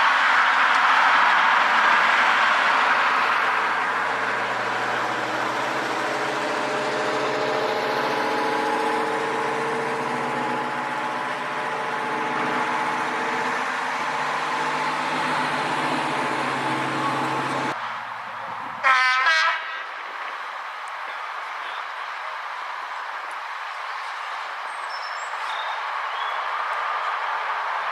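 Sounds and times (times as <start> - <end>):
diesel engine idling: 0.0 - 17.8.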